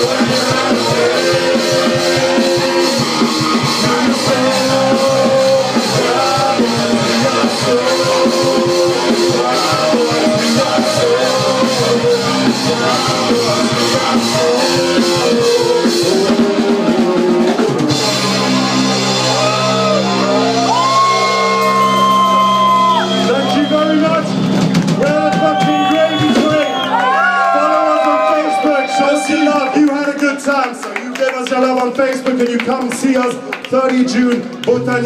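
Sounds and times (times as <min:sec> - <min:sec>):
guitar and bass: 0:00.0 - 0:27.1
drum kit beating: 0:00.0 - 0:30.2.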